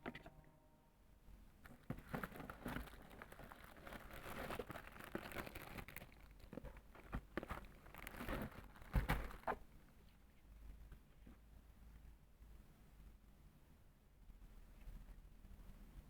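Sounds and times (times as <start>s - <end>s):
packaging crinkling and rustling: 1.6s - 9.6s.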